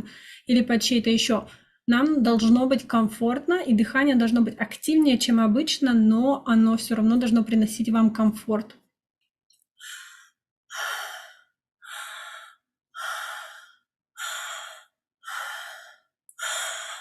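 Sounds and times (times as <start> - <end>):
woman breathing hard: 9.8 - 17.0.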